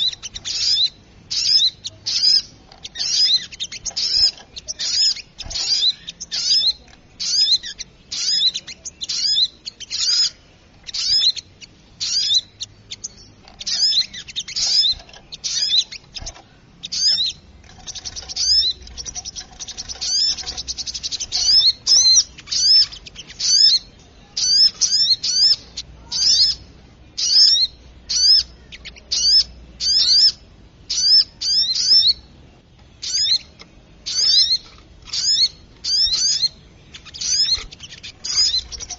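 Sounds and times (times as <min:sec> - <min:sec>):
bird sharp high chirps: 0:00.0 - 0:32.3, 0:32.9 - 0:38.9
bird fast rattling trill: 0:16.9 - 0:23.7.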